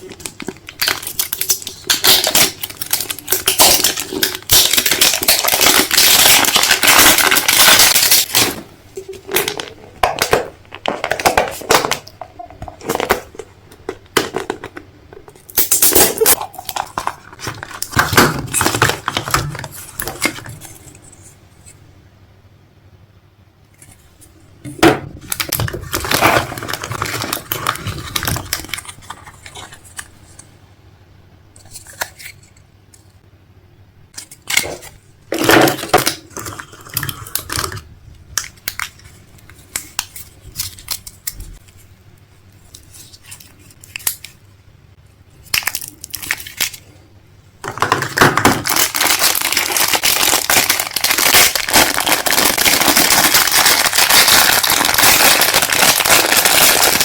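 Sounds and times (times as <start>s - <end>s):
crinkling crushing handling: 0.0s - 21.3s, 24.9s - 30.5s, 34.1s - 44.5s, 45.3s - 57.0s.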